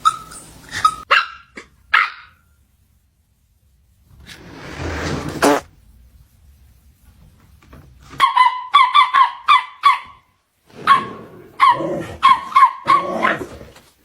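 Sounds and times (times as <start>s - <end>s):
small dog yapping: 8.2s - 10.2s, 10.8s - 13.6s.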